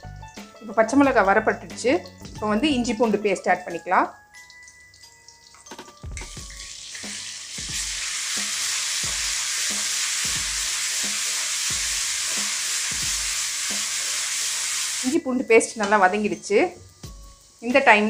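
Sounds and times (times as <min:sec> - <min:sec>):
paste sizzling in hot oil: 0:06.4 - 0:18.0
spatula stirring strokes: 0:07.6 - 0:15.1.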